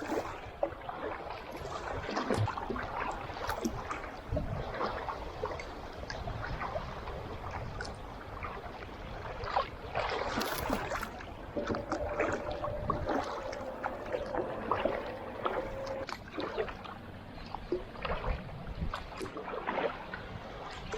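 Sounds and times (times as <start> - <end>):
paddle splashes: 0.0 - 20.9
rushing water: 0.0 - 20.9
thin steady tone: 10.4 - 16.1.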